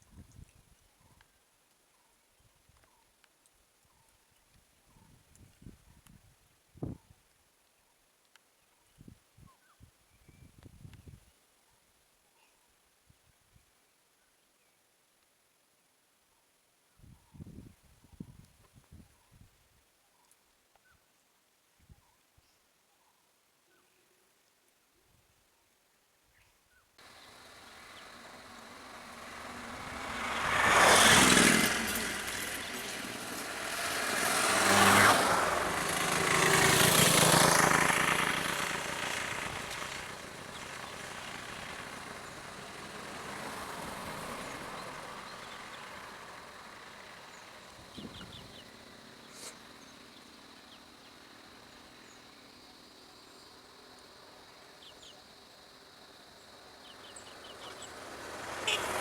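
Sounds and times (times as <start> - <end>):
road vehicles passing: 27.0 - 59.0
sharp ticks: 35.4 - 43.3.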